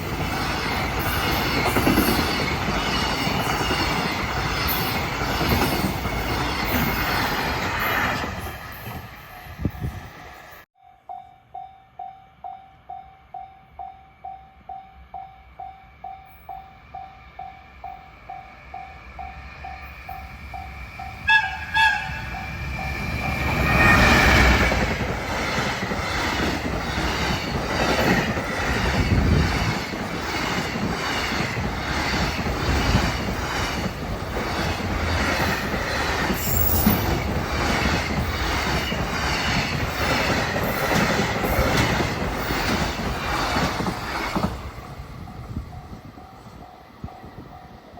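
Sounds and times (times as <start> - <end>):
train wheels clicking on rails: 0.0 - 10.6, 18.3 - 47.9
train horn: 21.2 - 22.6.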